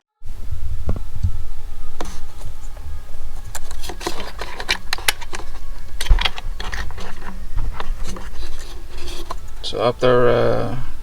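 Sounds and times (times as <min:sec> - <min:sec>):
low steady rumble: 0:00.2 - 0:11.0
plastic connector clicking and rattling: 0:03.4 - 0:09.7.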